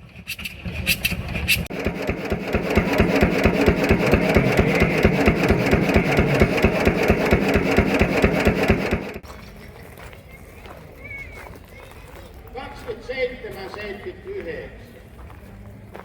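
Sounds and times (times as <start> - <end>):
engine running: 0.0 - 9.3.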